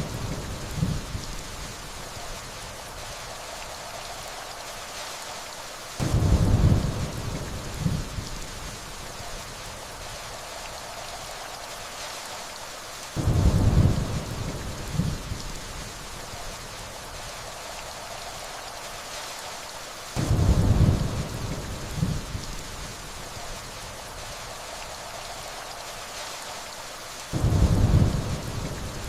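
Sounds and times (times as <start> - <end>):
steady rainfall: 0.0 - 29.0
distant thunder rumbles: 6.0 - 8.4, 13.2 - 15.4, 20.2 - 22.5, 27.3 - 29.0.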